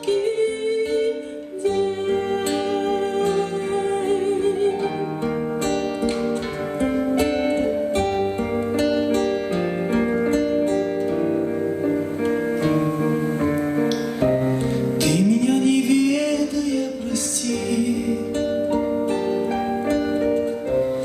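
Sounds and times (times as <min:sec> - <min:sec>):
pop song on electronic keyboard: 0:11.8 - 0:21.0.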